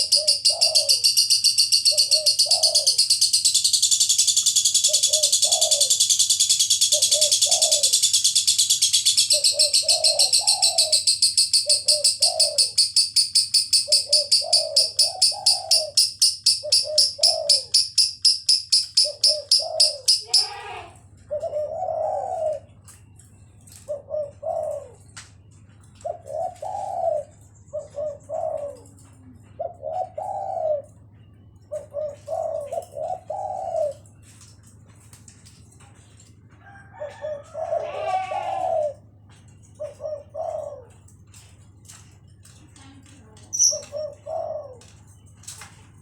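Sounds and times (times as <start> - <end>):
bird chattering trill: 0.0 - 20.9, 43.4 - 44.8
dove cooing: 0.0 - 34.7, 35.9 - 46.0.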